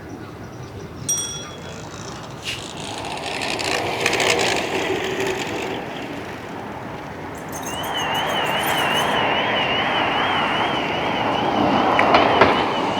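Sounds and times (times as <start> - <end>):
bell-like ring: 1.1 - 2.3, 7.4 - 9.6.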